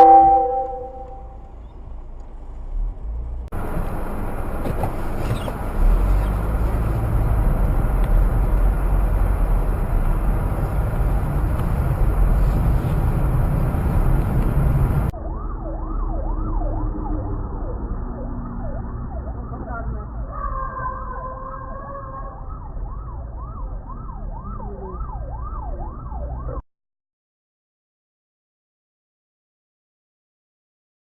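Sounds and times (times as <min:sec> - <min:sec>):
siren sweeping up and down: 0:00.0 - 0:01.3, 0:15.0 - 0:26.6
vehicle rushing and rumbling: 0:00.2 - 0:26.6.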